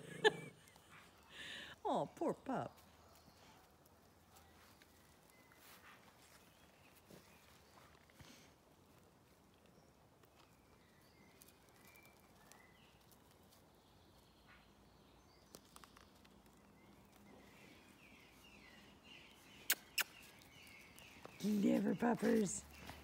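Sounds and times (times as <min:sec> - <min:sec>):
faint bird chirps: 0:13.8 - 0:23.0.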